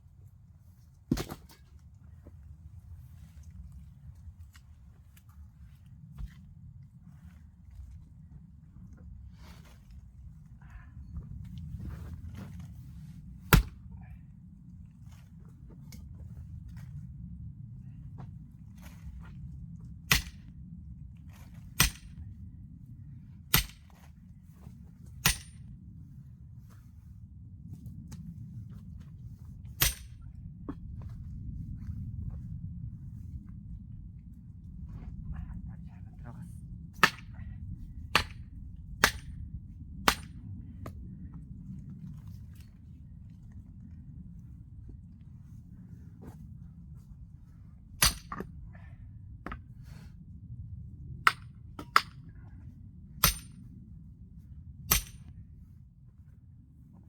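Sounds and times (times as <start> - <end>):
axe striking a log: 1.1 - 1.6, 13.5 - 13.8, 20.1 - 20.5, 21.8 - 22.2, 23.5 - 24.1, 25.3 - 25.5, 29.8 - 30.2, 37.0 - 37.3, 38.2 - 38.4, 39.0 - 39.3, 40.1 - 40.3, 48.0 - 48.5, 51.3 - 52.2, 53.2 - 53.6, 54.9 - 55.3.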